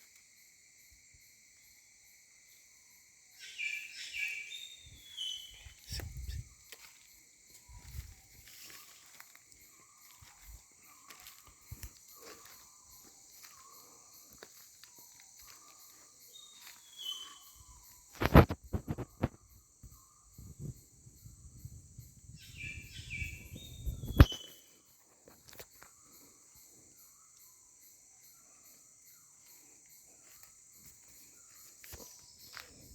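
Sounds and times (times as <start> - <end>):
insects droning: 0.0 - 32.9
bird calls: 3.4 - 7.0, 7.6 - 20.5, 22.4 - 24.9.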